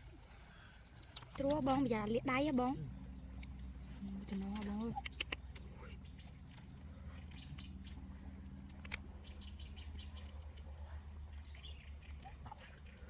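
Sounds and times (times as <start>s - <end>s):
low background rumble: 0.0s - 13.0s
faint bird chirps: 9.2s - 13.0s.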